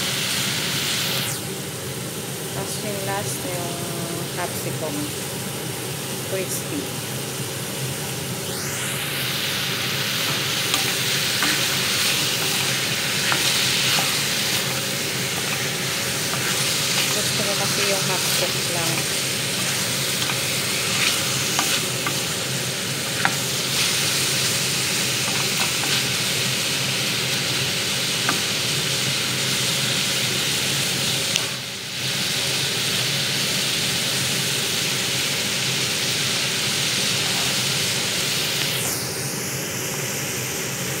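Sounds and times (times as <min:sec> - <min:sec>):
vegetables sizzling in a pot: 0:00.0 - 0:41.0.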